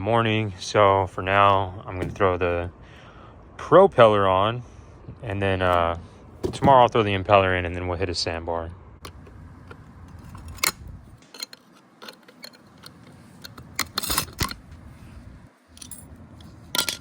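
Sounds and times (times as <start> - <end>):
metallic clicks and clinks: 10.1 - 14.6, 15.7 - 17.0.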